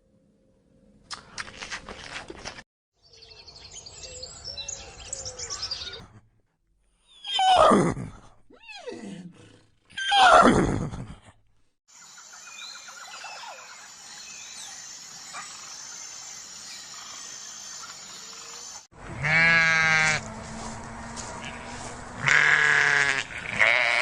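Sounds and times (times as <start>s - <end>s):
horse whinnying: 9.9s - 10.7s.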